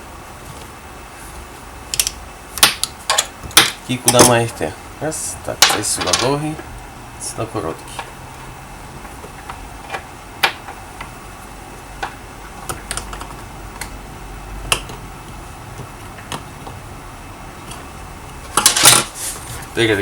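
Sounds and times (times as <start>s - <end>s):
clicks of small plastic parts: 1.9s - 4.3s.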